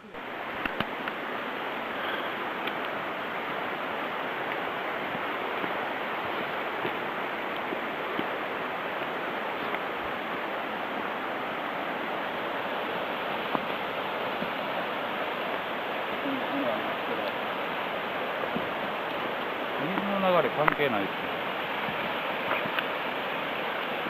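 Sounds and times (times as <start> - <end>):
stream water flowing: 0.0 - 24.0
faint clicks: 0.6 - 1.2, 2.6 - 3.0.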